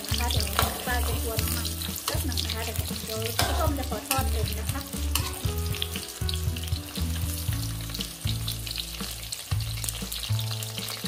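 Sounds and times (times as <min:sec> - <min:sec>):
eggplant sizzling in oil: 0:00.0 - 0:11.0
metal ladle stirring in wok: 0:00.1 - 0:06.3.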